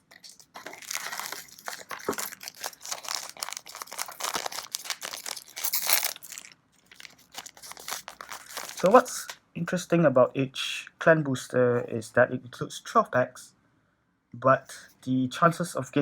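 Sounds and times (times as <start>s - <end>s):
plastic wrapping crinkling and tearing: 0.0s - 9.4s.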